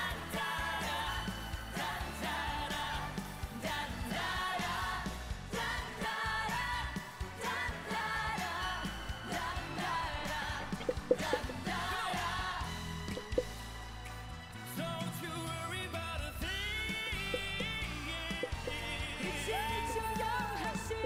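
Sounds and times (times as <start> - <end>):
person singing: 16.4 - 21.0.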